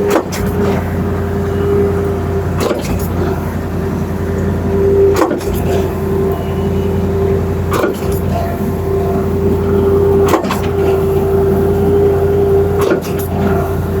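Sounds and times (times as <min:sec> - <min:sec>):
concrete pump truck running: 0:00.0 - 0:14.0
pump clunk: 0:00.0 - 0:14.0.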